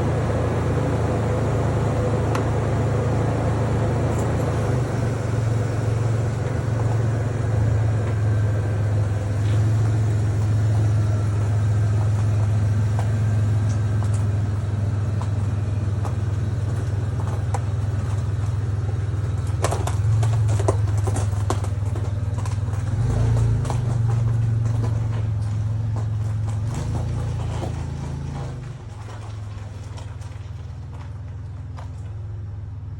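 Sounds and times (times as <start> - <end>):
engine idling: 0.0 - 32.9.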